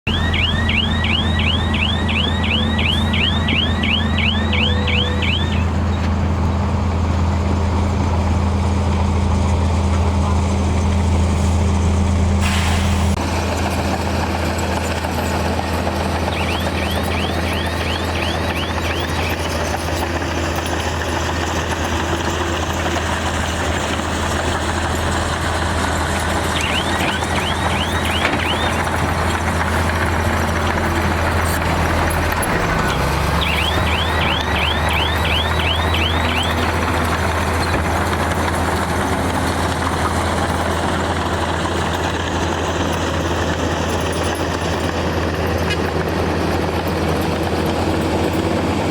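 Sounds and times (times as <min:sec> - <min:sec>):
reversing alarm chirps: 0:00.0 - 0:06.6, 0:15.2 - 0:45.4
diesel machinery engine drone: 0:00.0 - 0:48.9.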